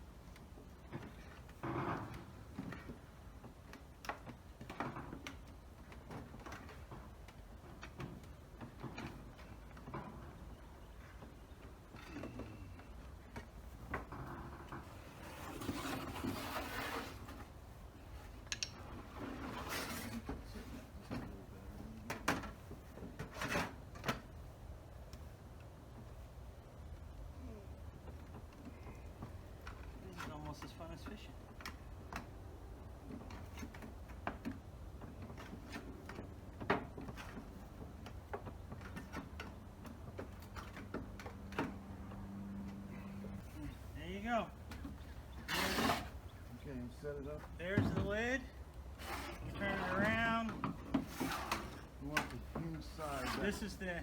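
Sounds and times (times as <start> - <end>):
sheet metal scraping and rubbing: 14.2 - 17.5, 45.0 - 46.6, 49.0 - 51.9, 52.8 - 53.8.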